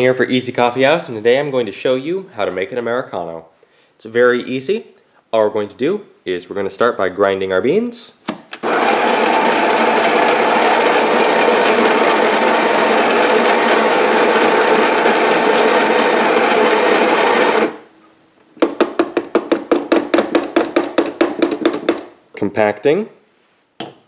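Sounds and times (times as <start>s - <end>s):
coffee grinder whirring: 8.6s - 17.8s.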